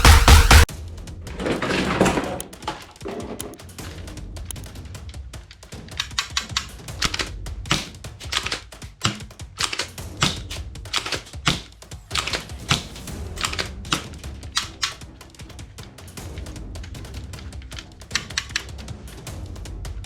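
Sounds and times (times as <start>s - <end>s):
sharp clicks and snaps: 5.8s - 15.0s, 16.8s - 18.8s.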